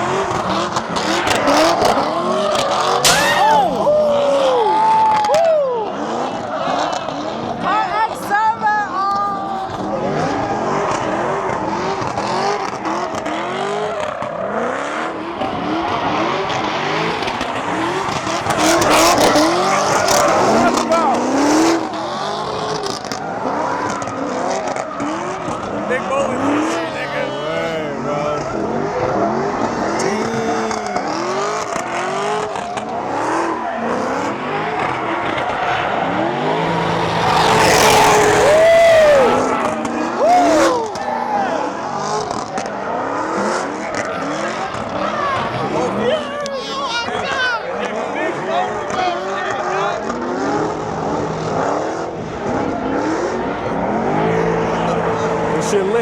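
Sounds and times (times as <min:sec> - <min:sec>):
car engine revving: 0:00.0 - 0:56.0
tire squeal: 0:00.0 - 0:56.0
tyre noise: 0:15.4 - 0:26.8.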